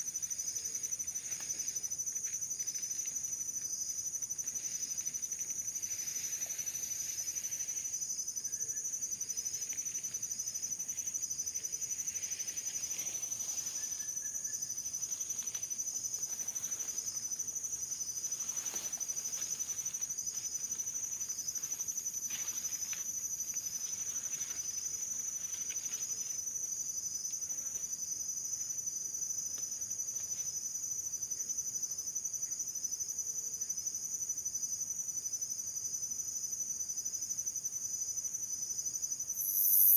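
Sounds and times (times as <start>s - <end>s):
insect high-pitched trill: 0.0s - 33.6s, 38.0s - 39.9s
insect short chirps: 39.2s - 39.9s.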